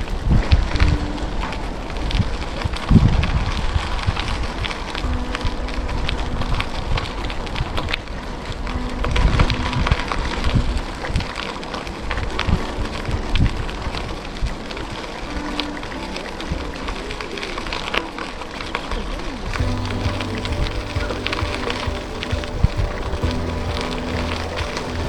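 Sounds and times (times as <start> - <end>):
crackles and clicks: 0.0 - 25.0.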